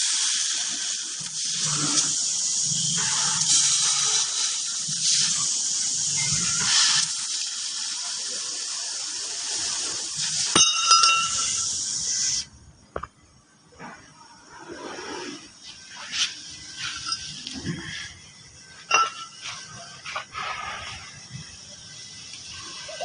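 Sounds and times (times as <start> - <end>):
laser cutting hiss: 0.0 - 12.6.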